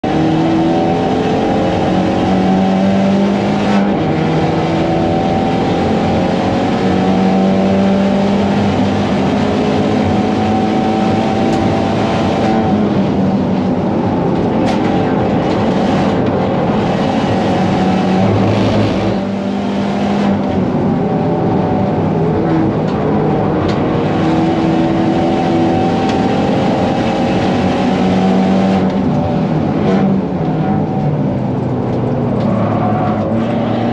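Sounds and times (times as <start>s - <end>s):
car engine revving hard: 0.0s - 33.9s.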